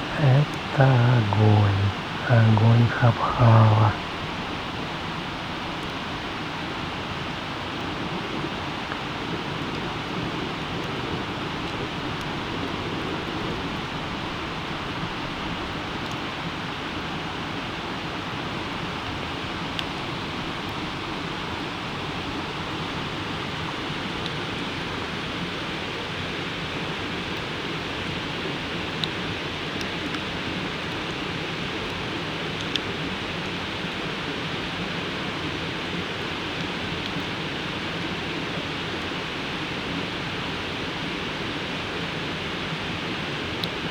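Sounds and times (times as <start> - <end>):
campfire hissing and crackling: 27.7 - 42.2.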